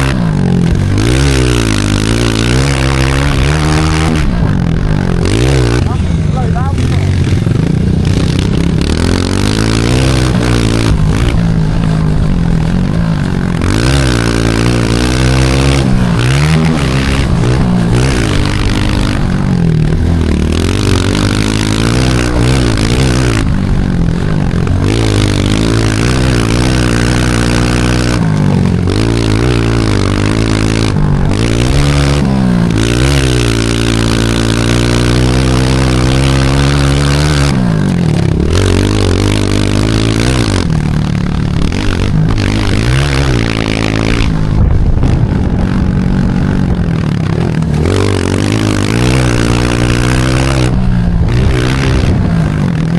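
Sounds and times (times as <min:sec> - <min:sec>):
pit bike engine revving: 0:00.0 - 0:52.9.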